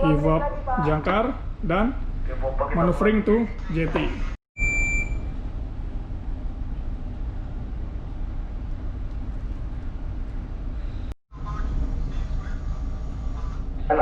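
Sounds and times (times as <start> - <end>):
short electronic beep: 4.6 - 5.3
ship engine rumble: 5.2 - 14.0.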